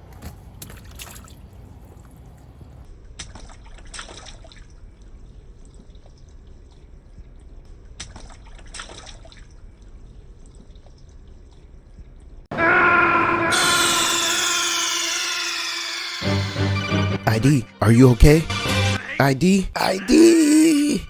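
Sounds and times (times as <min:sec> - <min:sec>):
water trickling and dripping: 0:00.2 - 0:12.5
water splashing: 0:00.4 - 0:12.5.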